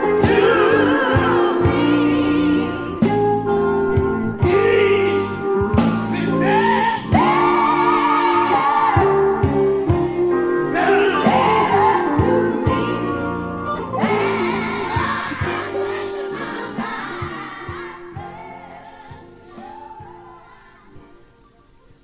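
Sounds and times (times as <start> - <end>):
band accompaniment: 0.0 - 20.2
gospel group singing: 0.0 - 21.2
steady drum beat: 3.9 - 6.5.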